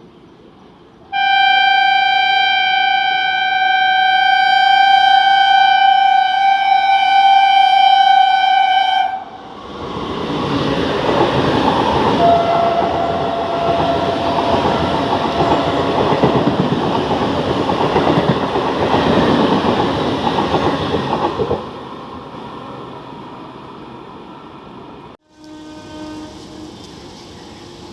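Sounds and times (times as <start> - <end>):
train horn: 1.1 - 9.4, 12.2 - 16.1, 25.2 - 26.9
train wheels clattering: 10.4 - 21.6.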